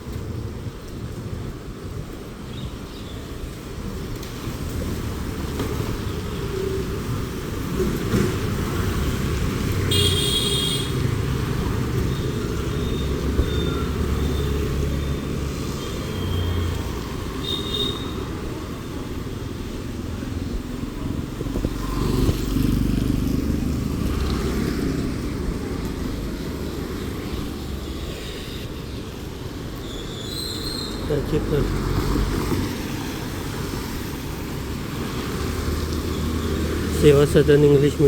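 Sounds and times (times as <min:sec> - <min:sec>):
road traffic rumble: 0:00.0 - 0:38.0
vehicle passing close: 0:18.5 - 0:28.8.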